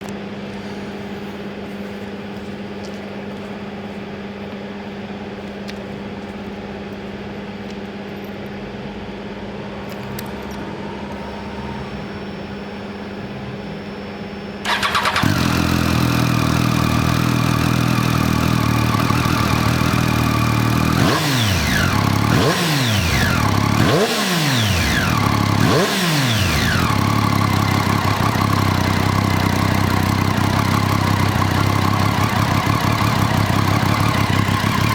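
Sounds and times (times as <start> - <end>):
steady low hum: 0.0 - 20.9
engine throttle blips: 14.6 - 34.9
motorcycle engine idling: 14.7 - 34.9.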